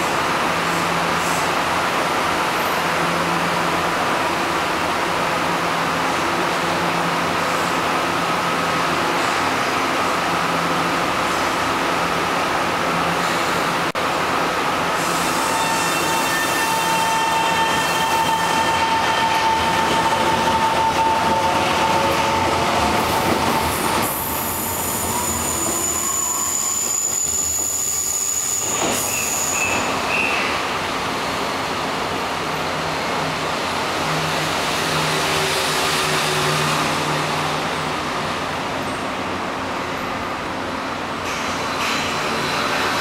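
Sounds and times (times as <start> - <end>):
thin high-pitched squeal: 24.9 - 30.4.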